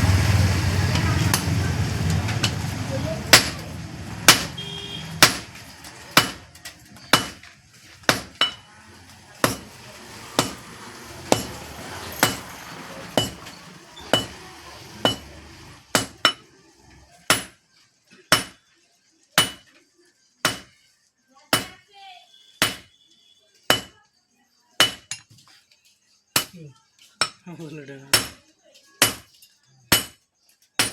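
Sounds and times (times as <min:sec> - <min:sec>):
hammer striking steel on anvil: 0:00.9 - 0:01.6, 0:03.3 - 0:03.6, 0:04.3 - 0:04.6, 0:05.2 - 0:05.5, 0:06.2 - 0:06.5, 0:07.1 - 0:07.4, 0:08.1 - 0:08.6, 0:09.4 - 0:09.7, 0:10.4 - 0:10.6, 0:11.3 - 0:11.6, 0:12.2 - 0:12.5, 0:13.2 - 0:14.4, 0:15.0 - 0:15.3, 0:15.9 - 0:16.4, 0:17.3 - 0:17.6, 0:18.3 - 0:18.6, 0:19.4 - 0:19.7, 0:20.4 - 0:20.7, 0:21.6 - 0:21.8, 0:22.6 - 0:22.9, 0:23.7 - 0:24.0, 0:24.8 - 0:25.2, 0:26.4 - 0:26.6, 0:28.1 - 0:28.4, 0:29.0 - 0:29.3, 0:29.9 - 0:30.2.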